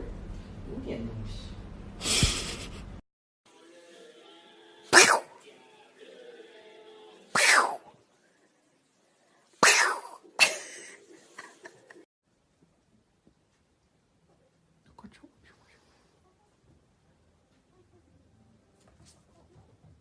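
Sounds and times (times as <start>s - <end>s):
sharp sneezes: 4.9s - 5.4s, 7.4s - 7.9s, 9.6s - 10.6s.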